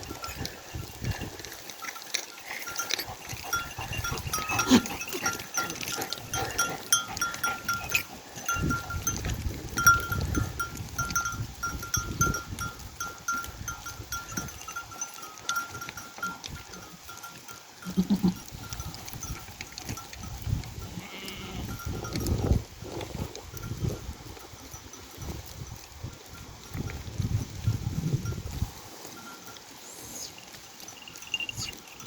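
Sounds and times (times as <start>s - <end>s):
livestock bell clinking: 0.0s - 22.6s, 23.5s - 32.0s
sheep bleating: 17.8s - 18.5s, 20.9s - 21.7s.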